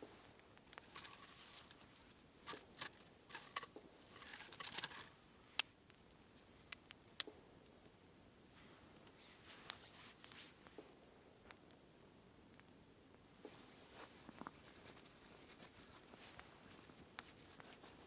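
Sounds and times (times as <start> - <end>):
crinkly rustling: 0.0 - 5.3, 13.5 - 18.0.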